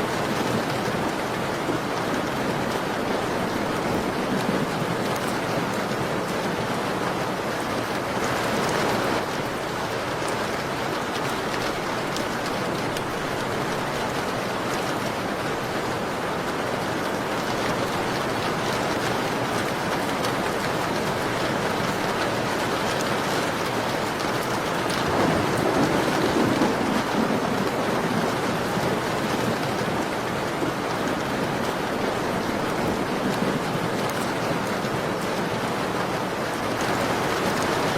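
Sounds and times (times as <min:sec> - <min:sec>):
rain pattering on a window: 0:00.0 - 0:37.9.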